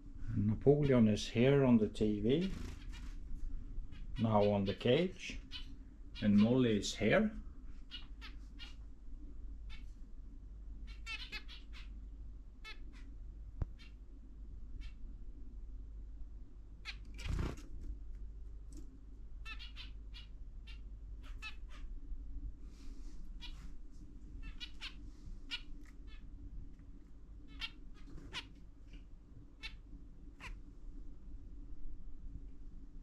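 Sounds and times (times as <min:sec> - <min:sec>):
birds chirping: 0:03.9 - 0:07.1, 0:24.4 - 0:26.3.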